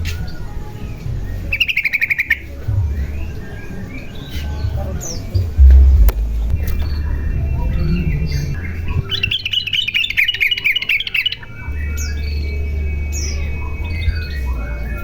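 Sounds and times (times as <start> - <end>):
bird singing bubbly notes: 1.5 - 14.8
steady low rumble: 4.7 - 9.9.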